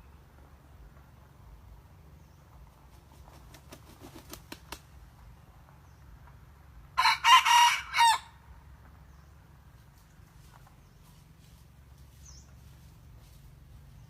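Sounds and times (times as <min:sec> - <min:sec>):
rooster crowing: 0:07.0 - 0:08.4.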